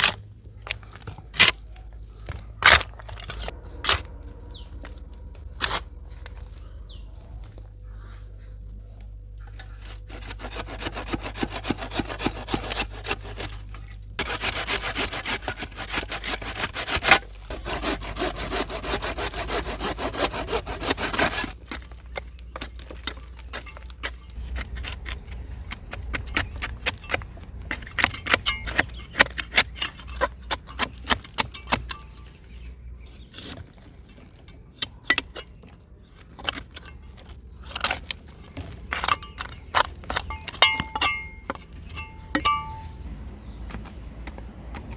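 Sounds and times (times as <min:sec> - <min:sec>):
wood being handled: 0:00.0 - 0:44.9
hand saw cutting wood: 0:09.5 - 0:22.0, 0:22.6 - 0:33.8, 0:36.2 - 0:42.9.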